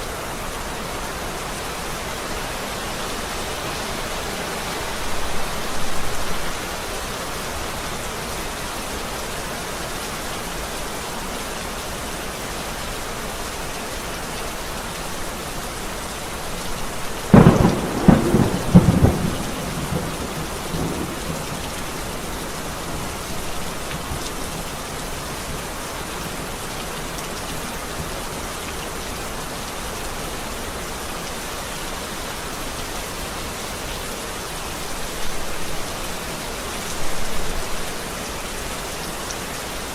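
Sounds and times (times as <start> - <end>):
heavy rain hissing: 0.0 - 39.9
thunderclap cracks and rumble: 17.3 - 21.8.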